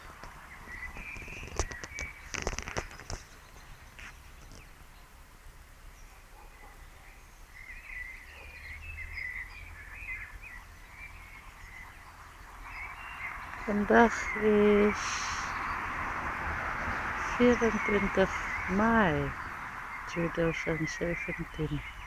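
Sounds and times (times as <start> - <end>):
high chirping calls: 7.5 - 22.0
low background hum: 11.7 - 22.0.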